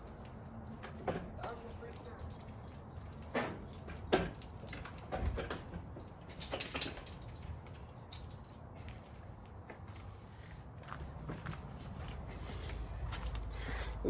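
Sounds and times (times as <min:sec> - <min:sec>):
metal jangling: 0:00.0 - 0:11.0
metallic clinks of hand tools: 0:00.0 - 0:11.0.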